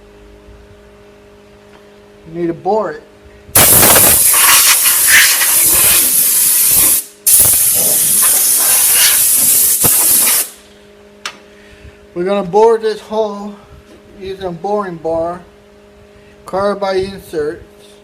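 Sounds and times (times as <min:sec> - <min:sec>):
compressed air blow gun hissing: 0:03.6 - 0:10.6.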